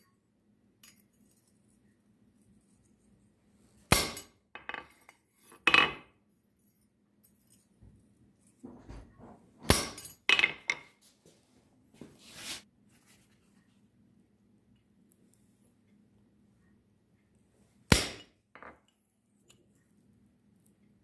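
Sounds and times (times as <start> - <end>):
short scraping rustle: 12.1 - 13.3.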